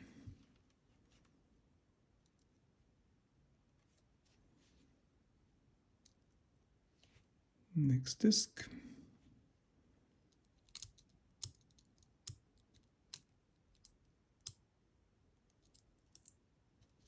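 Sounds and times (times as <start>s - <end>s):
small metal clicks and taps: 10.3s - 14.6s, 15.5s - 16.4s.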